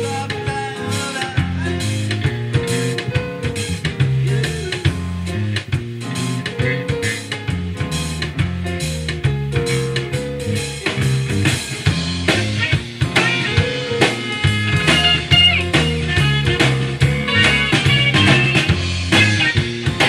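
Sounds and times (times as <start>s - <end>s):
rock music: 0.0s - 20.0s.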